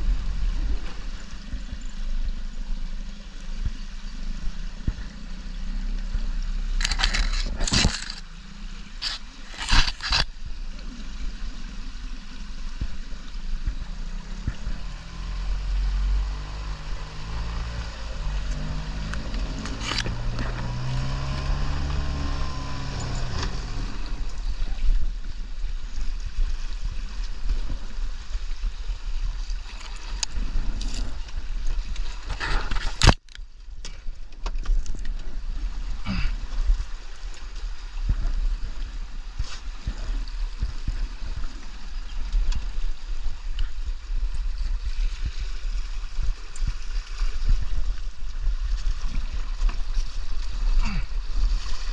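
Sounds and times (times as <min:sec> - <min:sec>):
boat motor humming: 0:00.0 - 0:26.0
low rumble and water noise: 0:00.0 - 0:51.9.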